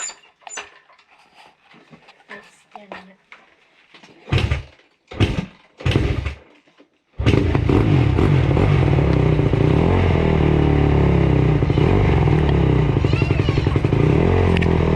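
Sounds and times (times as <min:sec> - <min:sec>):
motorcycle engine kick-started: 0:04.3 - 0:06.5, 0:07.2 - 0:09.5, 0:11.6 - 0:14.9.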